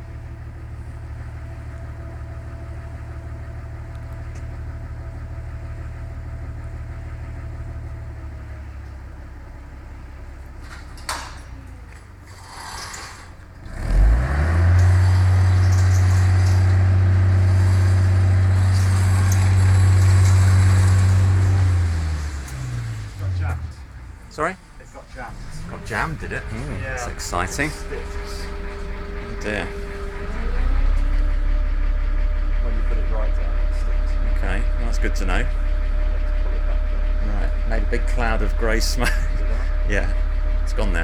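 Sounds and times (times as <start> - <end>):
bus diesel engine idling: 0.0 - 41.0
clunk: 10.6 - 13.7.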